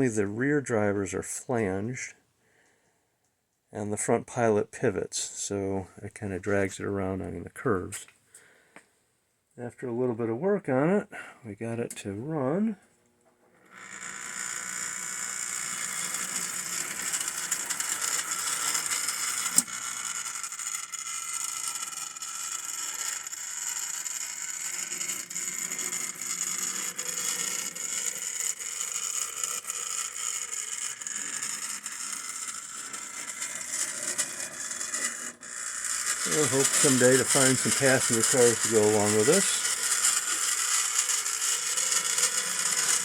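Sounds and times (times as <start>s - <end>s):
model train motor whirring: 13.5s - 43.0s
gears and wheels rattling: 15.6s - 43.0s.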